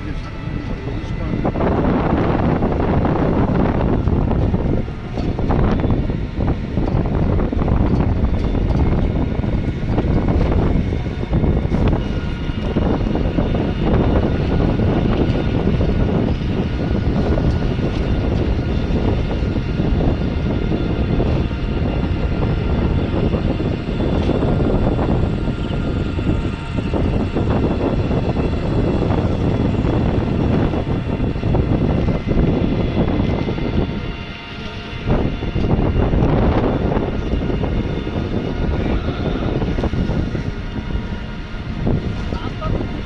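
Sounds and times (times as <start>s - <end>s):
faint whining tones: 0.0s - 43.0s
vehicle rumble: 0.0s - 43.0s.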